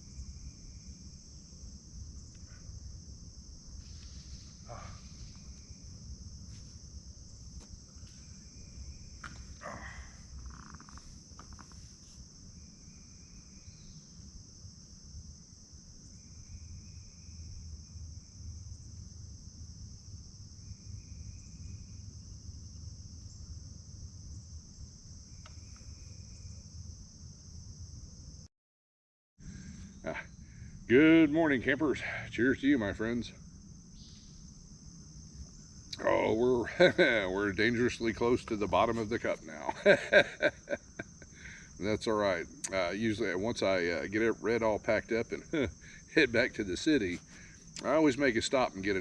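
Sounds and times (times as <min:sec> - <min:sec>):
crickets chirping: 0:00.0 - 0:28.5, 0:29.4 - 0:49.0
short faint calls: 0:09.2 - 0:12.2
low outdoor rumble: 0:29.4 - 0:49.0.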